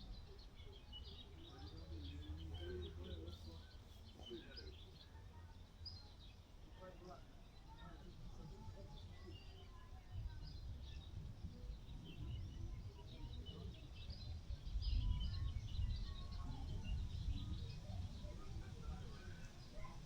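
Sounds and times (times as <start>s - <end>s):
small birds chirping: 0.0s - 20.0s
wind rumble on microphone: 9.7s - 20.0s.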